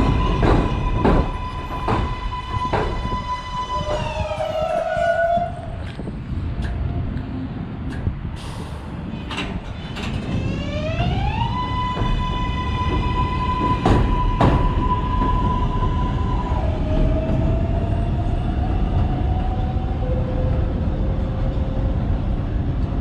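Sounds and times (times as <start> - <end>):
wheels clacking over rail joints: 0.0 - 3.2, 9.1 - 15.9
subway train electric whine: 0.0 - 23.0.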